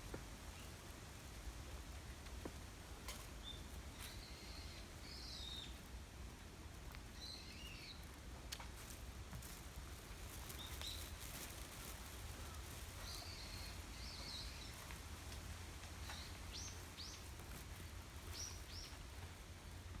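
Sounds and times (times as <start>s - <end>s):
wind in bamboo: 0.1s - 20.0s
small birds chirping: 3.4s - 5.9s, 7.1s - 8.2s, 10.2s - 15.4s, 16.0s - 19.2s.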